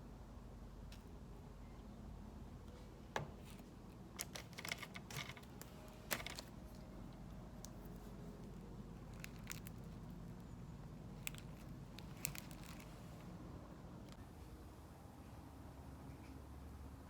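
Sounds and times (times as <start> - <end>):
low steady hum: 0.0 - 17.0
objects clicking and crinkling: 3.4 - 10.5, 11.1 - 13.4.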